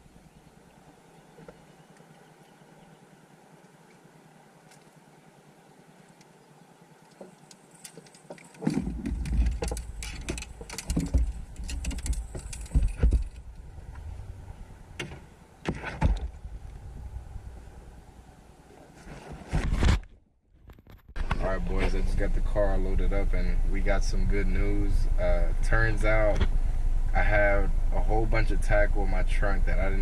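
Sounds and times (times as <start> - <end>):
knocks clicks and jangling of gear: 7.0 - 14.0
low rumbling handling noise: 7.0 - 30.0.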